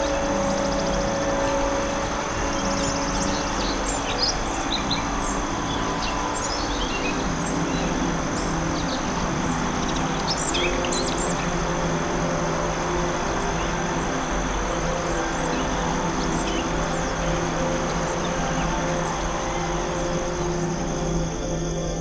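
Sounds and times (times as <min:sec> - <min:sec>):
birds chirping and whistling: 0:00.0 - 0:11.5
low sustained drone: 0:00.0 - 0:22.0
steady hiss: 0:00.0 - 0:22.0.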